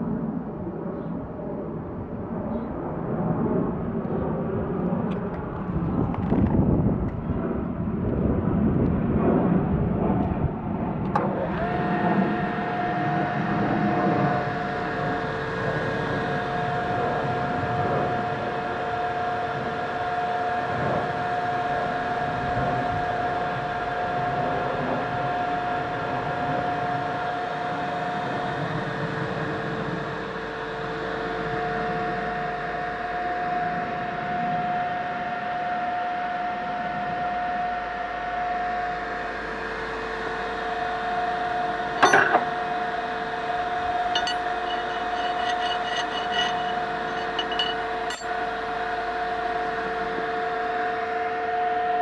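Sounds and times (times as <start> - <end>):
machine tool motor humming: 41.8 - 48.5.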